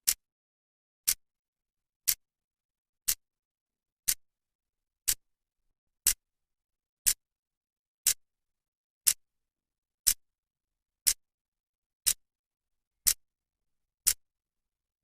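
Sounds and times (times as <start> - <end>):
clock ticking: 3.0 - 3.2, 4.0 - 4.3, 5.0 - 5.2, 9.0 - 9.2, 11.0 - 11.2.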